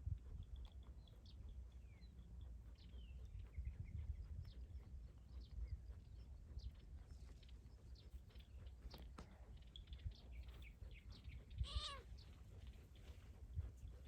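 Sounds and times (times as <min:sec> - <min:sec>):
small animal chirps and squeaks: 0:09.6 - 0:12.4.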